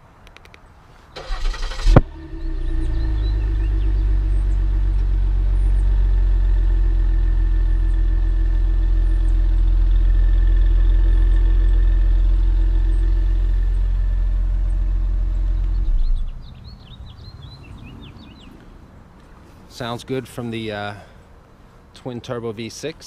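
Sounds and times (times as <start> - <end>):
car engine idling: 1.2 - 18.5.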